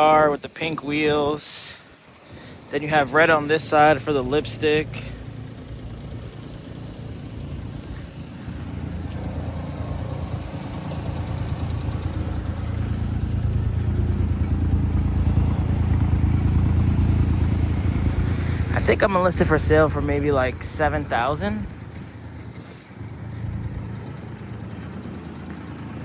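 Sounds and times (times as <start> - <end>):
small car engine humming: 0.0 - 26.0.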